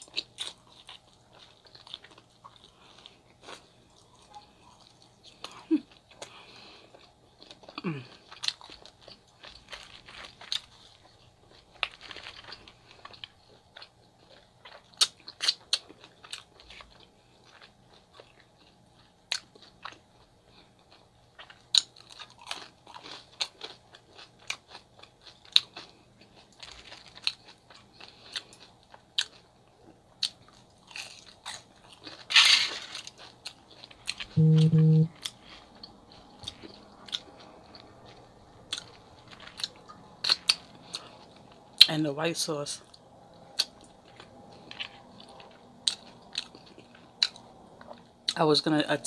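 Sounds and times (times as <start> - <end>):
wet chewing: 30.2 - 41.9, 43.2 - 48.0
person humming: 34.4 - 35.1.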